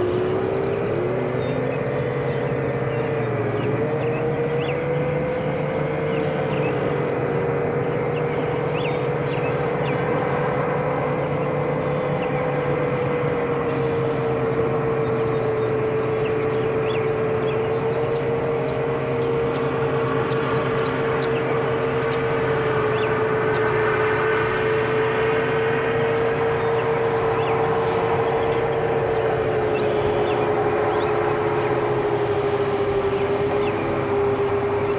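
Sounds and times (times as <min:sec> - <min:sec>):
drone motors whining: 0:00.0 - 0:34.9.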